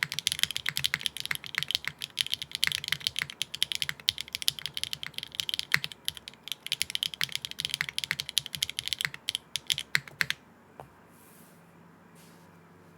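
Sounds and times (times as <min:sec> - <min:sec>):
fast typing on mechanical keyboard: 0:00.0 - 0:10.4.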